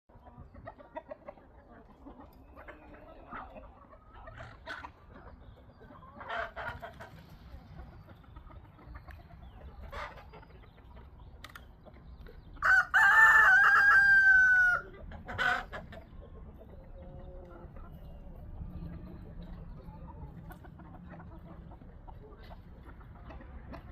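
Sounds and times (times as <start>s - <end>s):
hens clucking: 0.1s - 23.9s
rooster crowing: 12.6s - 14.8s.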